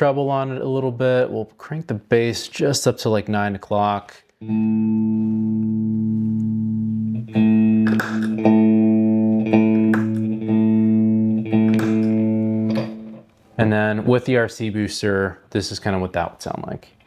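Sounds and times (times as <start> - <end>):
clean electric guitar strumming: 4.4 - 13.4.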